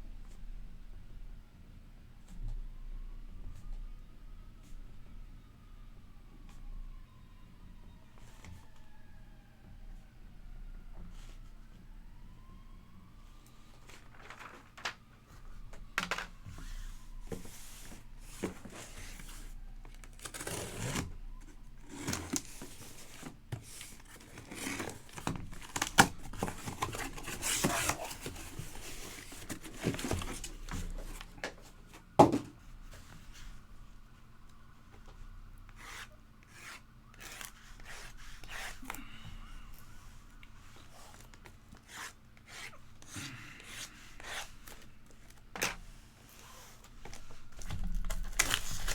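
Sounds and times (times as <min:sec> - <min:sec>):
plastic wrap and cardboard rustling: 0:13.6 - 0:33.7, 0:44.1 - 0:48.9.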